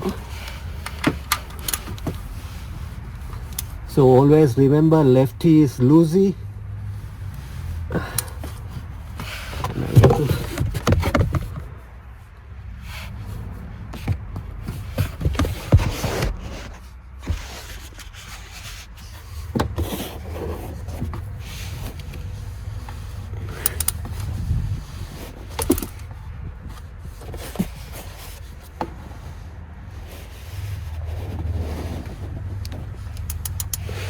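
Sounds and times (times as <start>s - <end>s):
wrench clicking and knocking: 23.6s - 24.1s, 25.6s - 26.0s, 33.1s - 33.9s.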